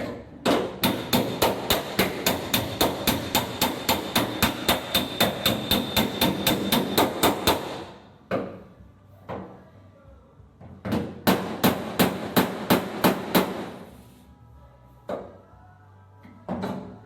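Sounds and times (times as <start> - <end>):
hammer striking sheet metal: 0.6 - 8.0, 11.2 - 13.9.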